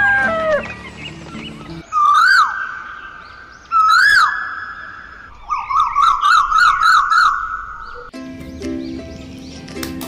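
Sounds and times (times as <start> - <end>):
shrill whistled call: 0.2 - 8.1.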